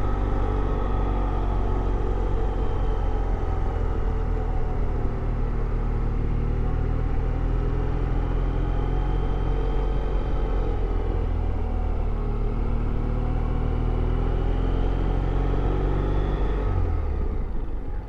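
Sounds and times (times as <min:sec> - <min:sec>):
road and wind noise: 0:00.0 - 0:18.0.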